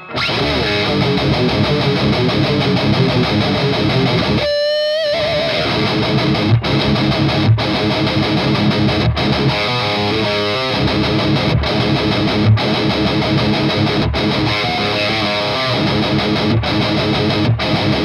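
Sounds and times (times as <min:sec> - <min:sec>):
overdriven electric guitar riff: 0:00.0 - 0:18.0.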